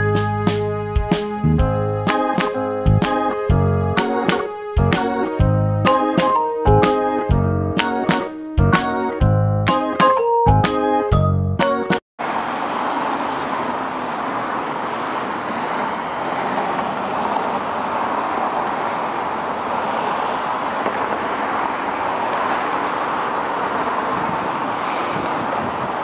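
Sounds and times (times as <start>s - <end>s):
city street traffic: 0.0s - 8.9s, 11.6s - 26.0s.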